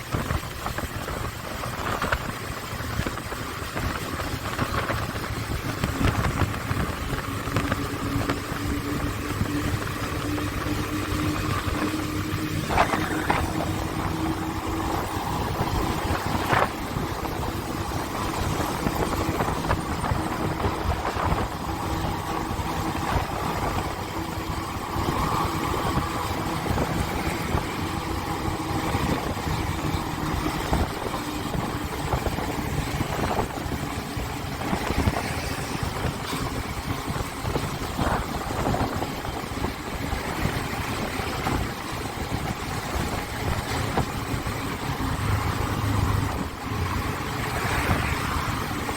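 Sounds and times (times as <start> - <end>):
motorcycle engine running: 0.0 - 48.9
wind and road noise: 0.0 - 48.9.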